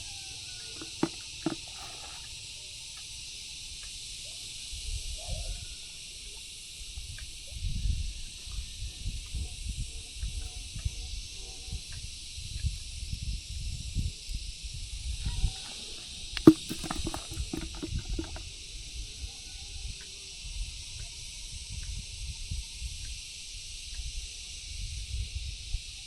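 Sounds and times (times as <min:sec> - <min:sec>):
sharp clicks and knocks: 0:00.8 - 0:02.2.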